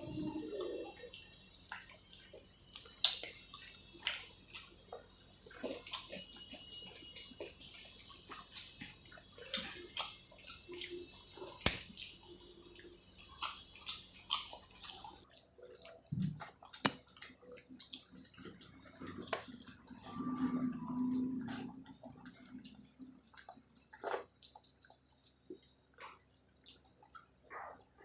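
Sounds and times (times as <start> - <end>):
wet eating sounds: 0.0 - 28.0.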